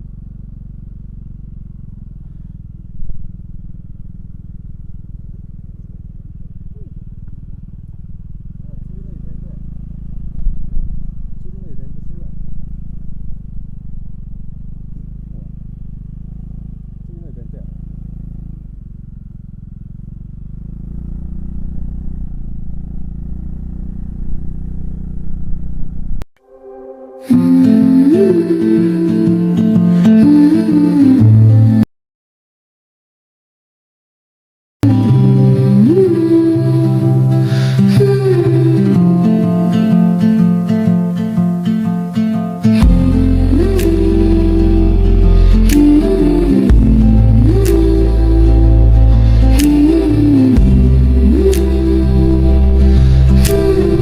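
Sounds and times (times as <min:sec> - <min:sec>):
scooter engine running: 0:00.0 - 0:26.2, 0:42.7 - 0:54.0.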